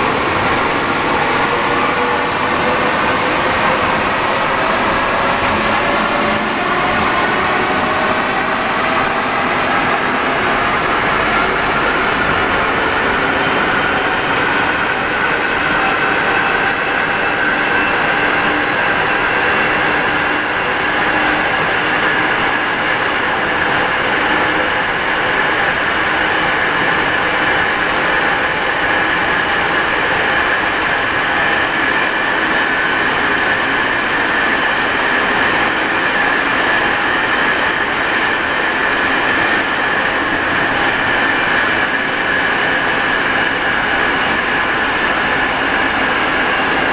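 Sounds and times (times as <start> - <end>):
metro train rolling roar: 0.0 - 46.9
train high whine: 0.0 - 46.9.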